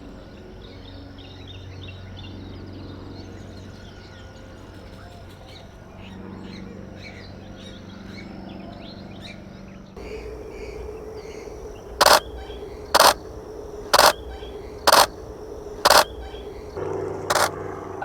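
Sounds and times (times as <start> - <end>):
harsh short bird calls: 10.0 - 17.5
faint birdsong: 10.0 - 18.0.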